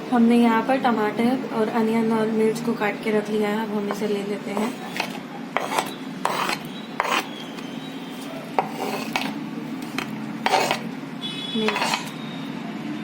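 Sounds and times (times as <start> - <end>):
utensil scraping and tapping bowl: 3.8 - 10.9, 11.6 - 12.2.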